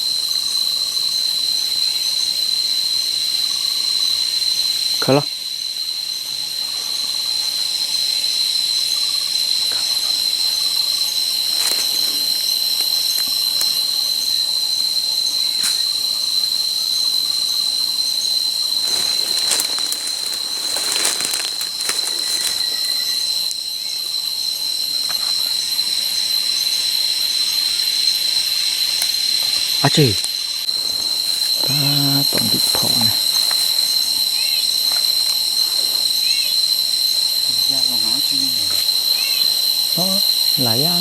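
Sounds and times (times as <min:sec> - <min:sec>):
high-pitched insect drone: 0:00.0 - 0:41.0
sharp crackles: 0:18.8 - 0:23.6.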